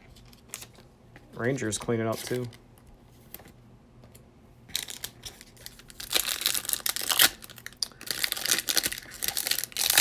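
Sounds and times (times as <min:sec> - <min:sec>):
card pack wrapper crinkling: 0:04.7 - 0:10.0.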